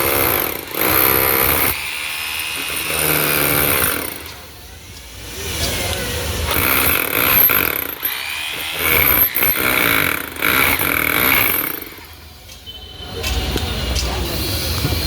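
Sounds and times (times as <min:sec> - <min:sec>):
electric hammer drill running: 0:00.0 - 0:04.4, 0:06.5 - 0:12.2.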